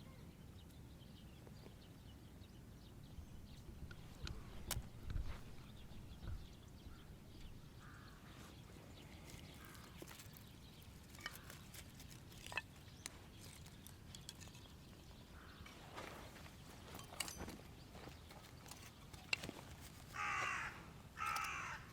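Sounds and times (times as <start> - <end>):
faint bird calls: 3.3 - 14.0, 17.9 - 21.9.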